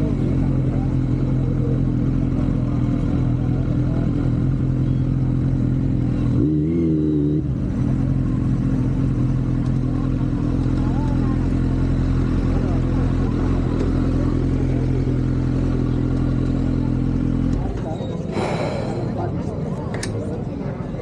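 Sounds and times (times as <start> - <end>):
motorcycle engine running: 0.0 - 19.5.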